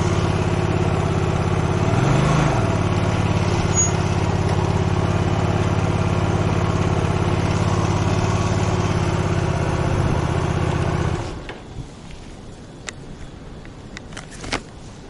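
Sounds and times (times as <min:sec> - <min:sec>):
motorcycle engine idling: 0:00.0 - 0:01.9, 0:02.6 - 0:11.2.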